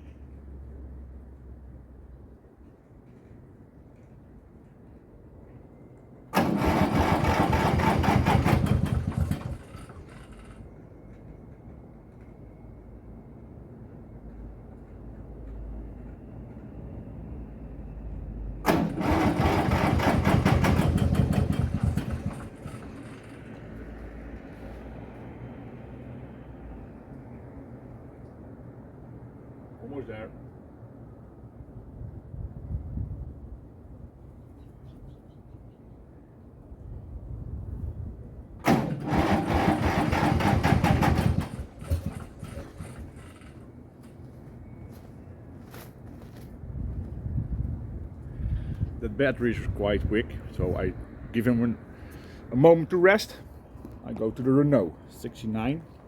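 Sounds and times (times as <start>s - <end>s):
tractor engine cranking on starter: 6.3s - 10.6s, 18.6s - 24.0s, 38.6s - 44.2s
diesel engine chugging: 6.4s - 10.7s, 18.6s - 24.1s, 38.6s - 43.8s.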